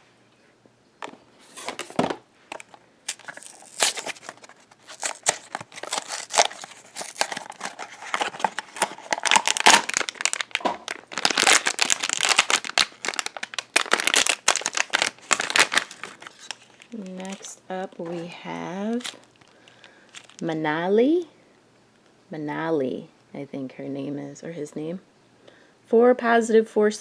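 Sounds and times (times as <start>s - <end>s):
packaging crinkling and tearing: 1.4s - 20.4s.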